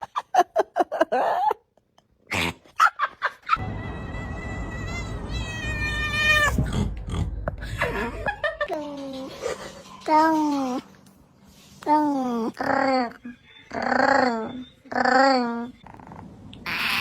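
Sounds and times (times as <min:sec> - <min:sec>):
low rumble: 0:03.6 - 0:10.0
cat yowling: 0:04.2 - 0:06.6, 0:16.6 - 0:17.0.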